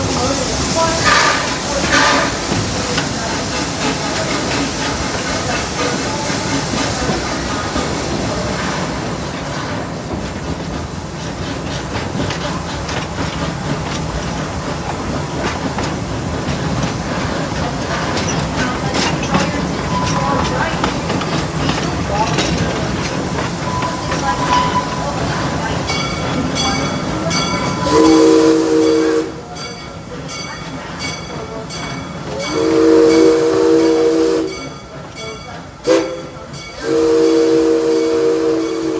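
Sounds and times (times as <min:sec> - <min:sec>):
train wheels clattering on rails: 0:00.0 - 0:38.9
steam locomotive chime whistle: 0:00.1 - 0:03.0, 0:19.3 - 0:20.6, 0:23.6 - 0:38.9
locomotive bell ringing: 0:17.2 - 0:28.2, 0:28.8 - 0:37.1.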